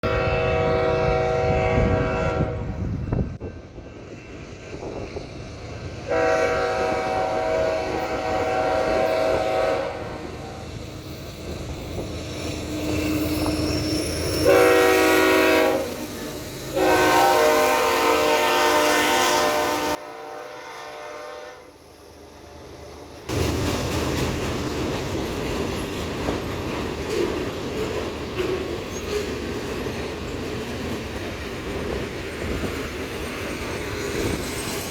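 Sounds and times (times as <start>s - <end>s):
locomotive air horn: 0.0s - 3.0s, 6.1s - 10.6s, 14.4s - 16.0s, 16.7s - 21.8s
train wheels rumbling on rail: 0.0s - 34.9s.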